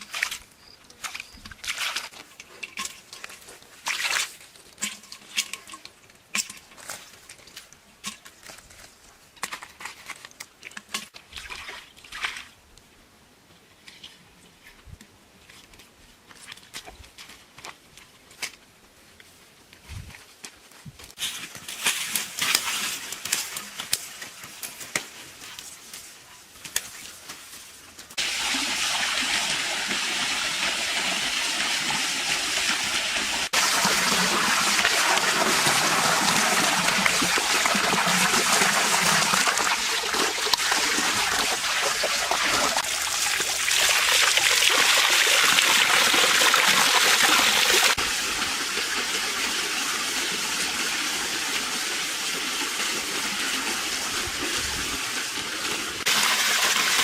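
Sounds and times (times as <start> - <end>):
waterfall pouring and splashing: 28.1 - 57.0.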